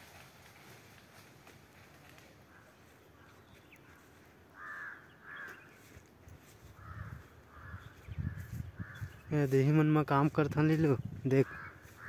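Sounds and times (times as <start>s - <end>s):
faint outdoor background: 0.0s - 12.0s
bird harsh calls: 2.5s - 9.6s, 11.0s - 12.0s.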